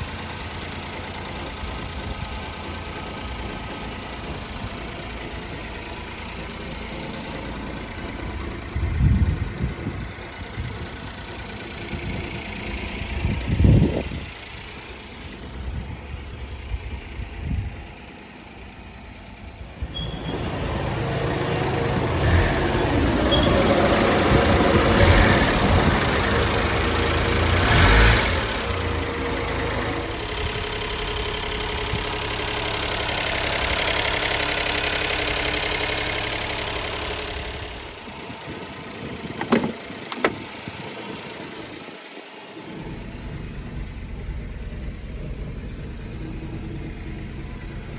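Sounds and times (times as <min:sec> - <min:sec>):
truck engine idling: 0:00.0 - 0:47.9.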